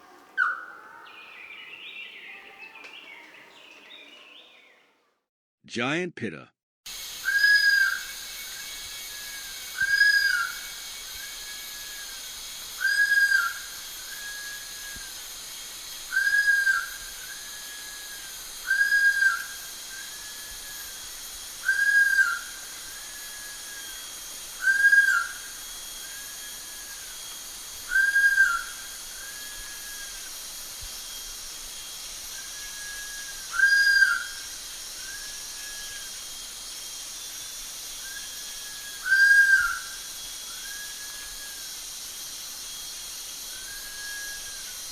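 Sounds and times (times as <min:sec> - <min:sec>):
steady background hiss: 0:00.0 - 0:04.8, 0:06.9 - 0:44.9
bird whistled calls: 0:00.4 - 0:04.8, 0:07.2 - 0:12.1, 0:12.8 - 0:15.1, 0:16.1 - 0:20.9, 0:21.6 - 0:24.0, 0:24.6 - 0:27.2, 0:27.8 - 0:30.3, 0:32.3 - 0:36.1, 0:38.0 - 0:41.6, 0:43.5 - 0:44.8.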